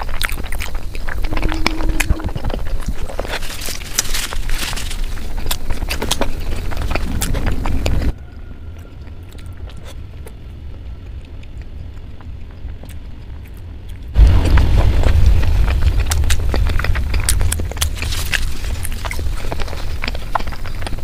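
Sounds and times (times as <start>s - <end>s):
chewing egg: 0.0s - 21.0s
low rumble: 0.5s - 3.2s, 14.2s - 20.6s.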